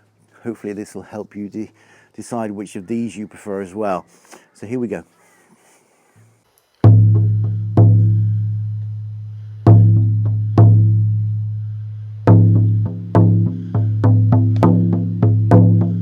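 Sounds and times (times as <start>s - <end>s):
frame drum beats: 6.8s - 9.1s, 9.7s - 11.5s, 12.3s - 16.0s.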